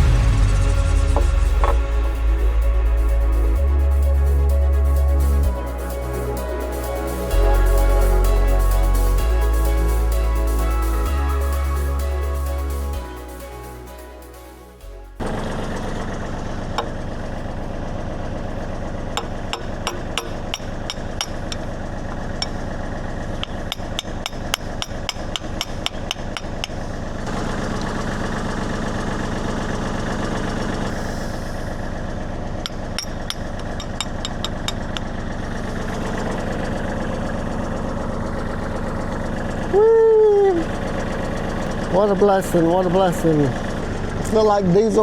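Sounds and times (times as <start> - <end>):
diesel engine idling: 0.0 - 45.0
metal-on-metal taps: 32.7 - 35.1.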